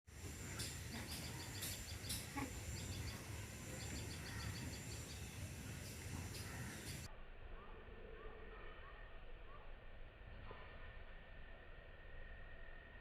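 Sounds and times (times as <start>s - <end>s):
low outdoor rumble: 0.1s - 13.0s
small bird chirping: 0.2s - 7.1s.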